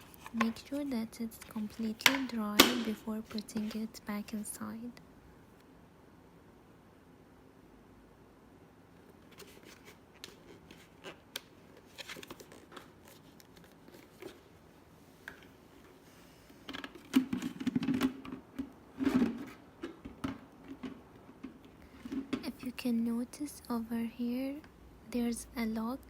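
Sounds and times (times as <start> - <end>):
plastic clattering and rubbing: 0.0 - 4.0, 16.6 - 22.5.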